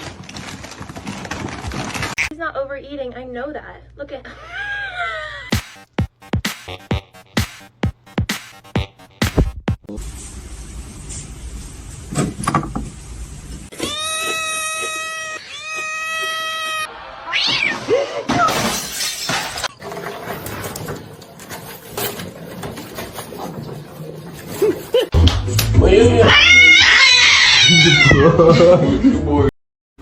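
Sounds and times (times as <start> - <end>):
cat yowling: 13.7 - 17.9, 26.2 - 28.4.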